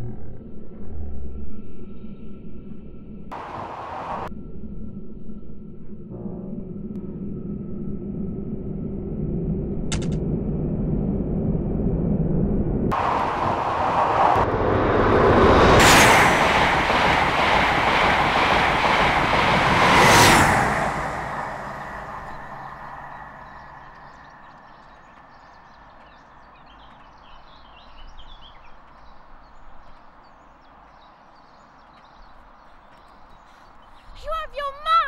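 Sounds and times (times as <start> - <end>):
train passing at speed: 3.3 - 4.3, 12.9 - 35.0
sharp whoosh: 12.9 - 24.4.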